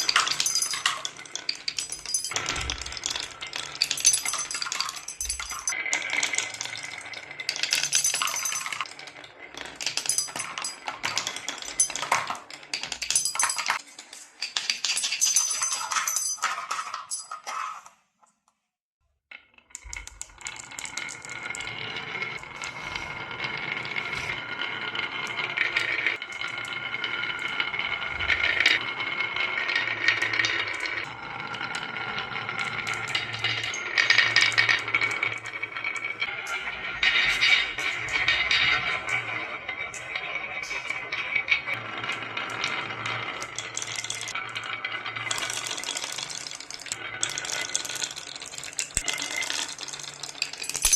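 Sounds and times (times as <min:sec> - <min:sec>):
glass marbles clattering: 0:00.0 - 0:17.9, 0:29.4 - 0:50.9.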